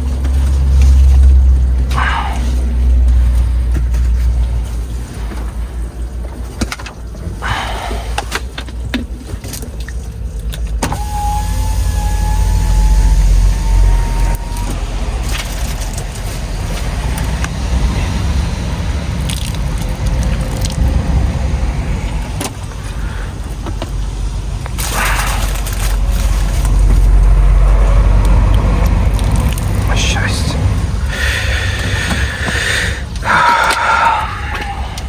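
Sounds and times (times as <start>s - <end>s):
vehicle engine rumbling: 0.0s - 35.0s
electric motor whine: 10.9s - 16.0s.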